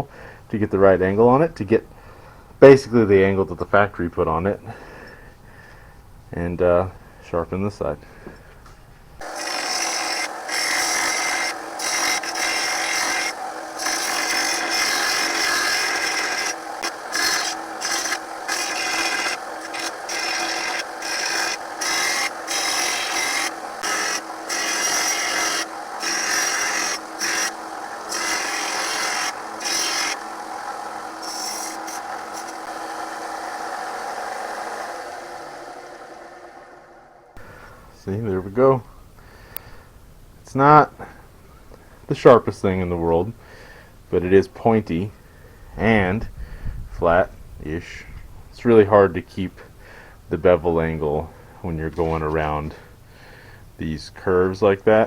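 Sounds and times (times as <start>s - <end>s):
blade grinding on belt sander: 9.2s - 37.5s
sander running down: 9.2s - 37.5s.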